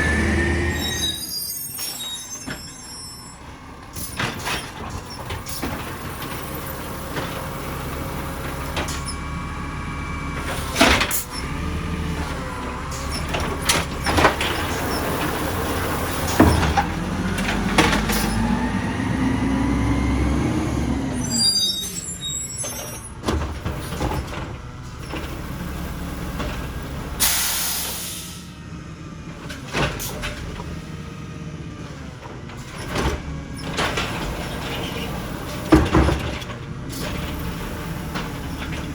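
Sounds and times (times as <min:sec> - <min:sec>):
rising hydraulic whine: 0:00.0 - 0:03.4, 0:17.2 - 0:23.2
garbage truck engine running: 0:00.0 - 0:38.9
air brake hiss: 0:27.2 - 0:28.5.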